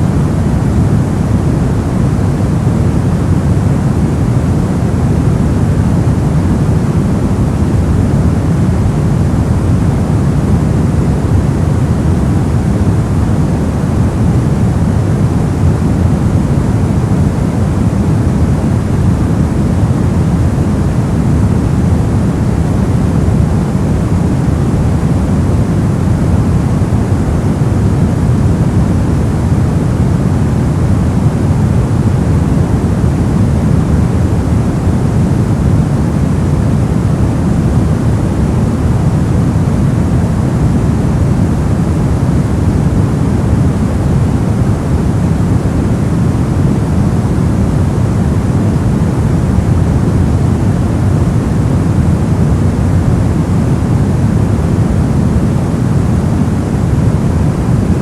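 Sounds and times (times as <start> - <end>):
low even noise rush: 0.0 - 58.0.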